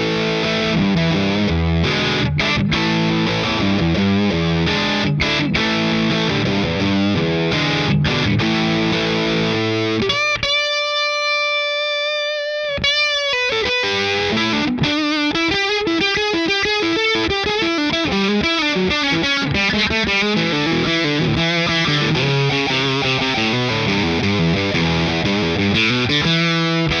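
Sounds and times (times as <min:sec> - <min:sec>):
distorted electric guitar: 0:00.0 - 0:27.0.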